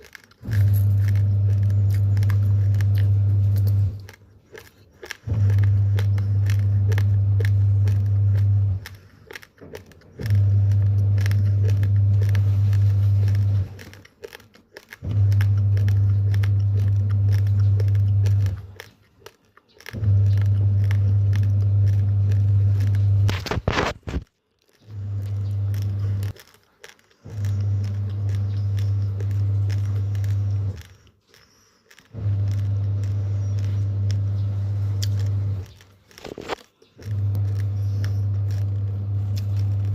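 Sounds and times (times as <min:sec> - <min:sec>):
low hum: 0:00.0 - 0:09.1, 0:10.1 - 0:14.0, 0:15.0 - 0:18.8, 0:20.0 - 0:24.2, 0:27.2 - 0:30.9, 0:32.1 - 0:35.8, 0:36.4 - 0:39.9
rice grains being crunched: 0:00.0 - 0:39.9.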